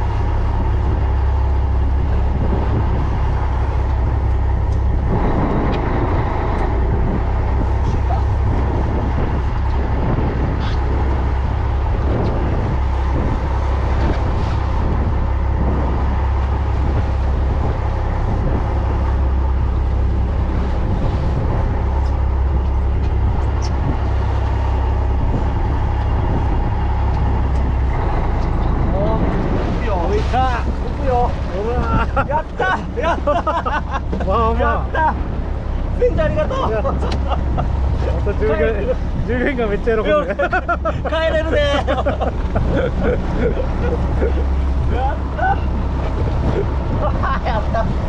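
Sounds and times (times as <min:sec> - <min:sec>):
boat engine rumbling: 0:00.0 - 0:48.0
water wash noise: 0:00.0 - 0:48.0.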